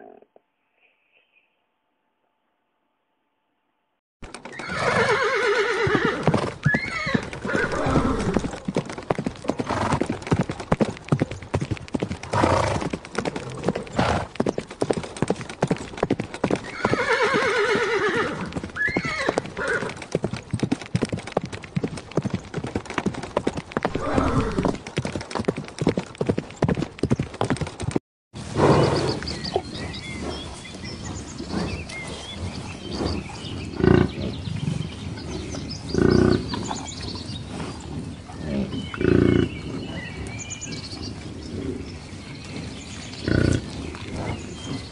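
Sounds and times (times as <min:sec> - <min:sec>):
rapid hoofbeats: 0:04.2 - 0:44.9
horses whinnying: 0:04.4 - 0:08.7, 0:09.5 - 0:10.3, 0:12.2 - 0:14.3, 0:16.4 - 0:20.1, 0:23.8 - 0:24.8.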